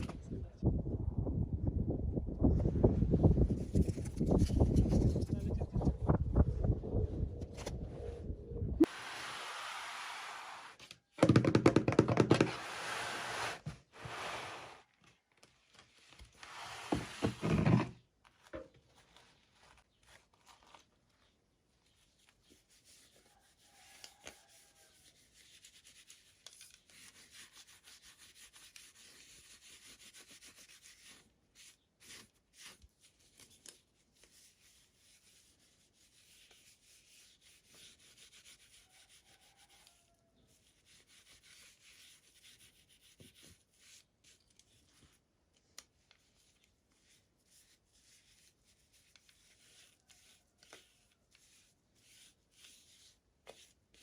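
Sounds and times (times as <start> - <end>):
hands rustling packaging: 18.2 - 22.4.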